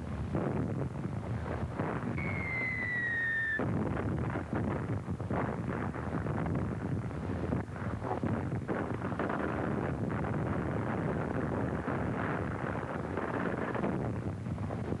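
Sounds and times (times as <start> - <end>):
shell whistling: 2.2 - 3.7.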